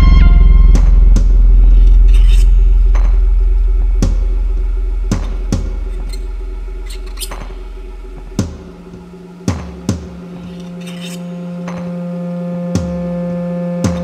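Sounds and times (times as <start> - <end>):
sharp percussive hits: 0.0 - 11.9
deep bass drone: 0.0 - 14.0.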